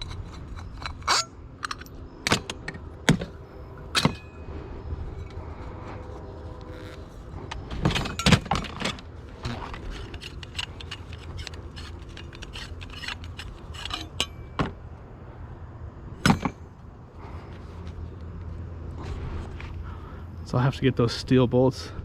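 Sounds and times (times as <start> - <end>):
scrap metal clinking: 0.0 - 4.5, 7.6 - 14.8, 16.2 - 16.7.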